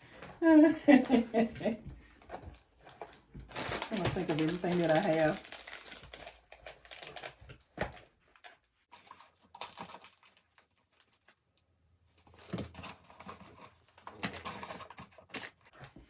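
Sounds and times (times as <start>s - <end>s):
packaging rustling: 2.2s - 11.4s.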